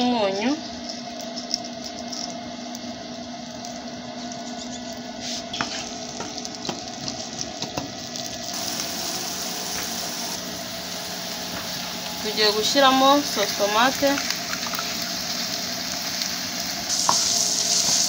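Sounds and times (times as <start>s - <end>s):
vegetables sizzling in oil: 5.2s - 18.0s.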